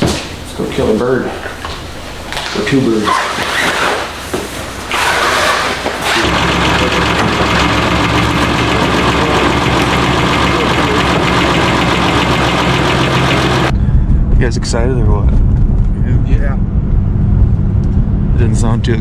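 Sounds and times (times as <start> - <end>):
vehicle engine starting and idling: 6.0 - 13.7.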